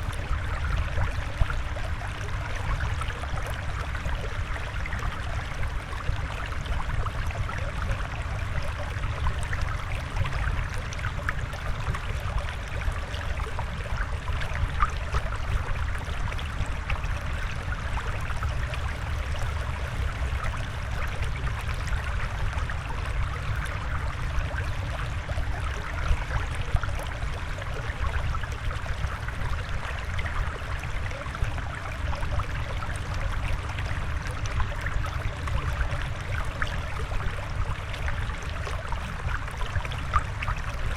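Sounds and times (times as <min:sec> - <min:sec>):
water flowing and trickling: 0:00.0 - 0:40.9.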